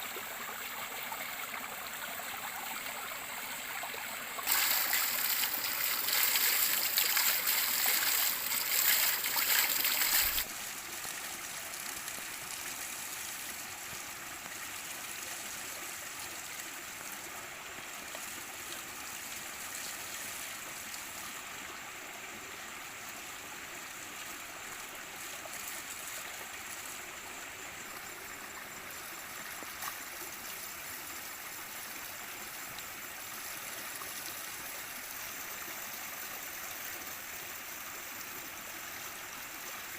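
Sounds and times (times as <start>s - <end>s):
running water rushing: 0.0s - 21.9s.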